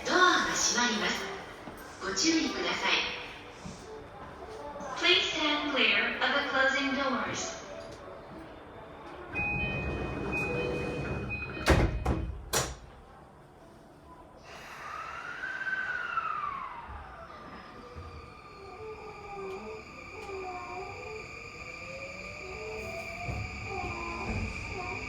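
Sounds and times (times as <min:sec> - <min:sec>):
train door chime beeping: 0:09.3 - 0:12.6
sliding doors thudding shut: 0:09.4 - 0:12.9
train motor inverter whine: 0:14.8 - 0:25.0.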